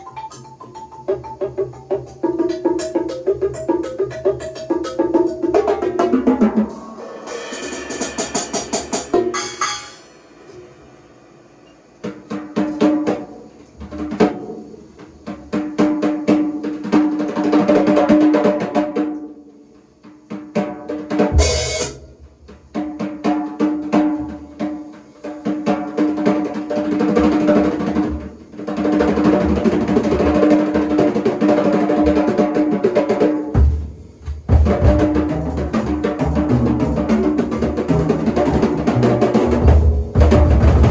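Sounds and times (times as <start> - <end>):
drum rolls and fills: 1.6 - 10.9, 21.0 - 40.9
bass drum strokes: 33.6 - 37.1, 39.6 - 40.9.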